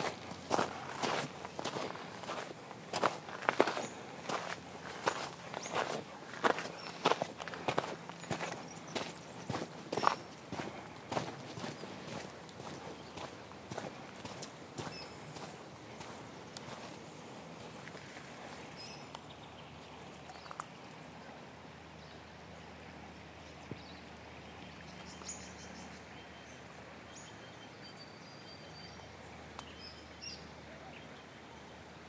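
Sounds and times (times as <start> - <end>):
crunching steps: 0.0 - 18.6
birds chirping: 0.0 - 21.4
low rumble and hiss: 0.0 - 32.0.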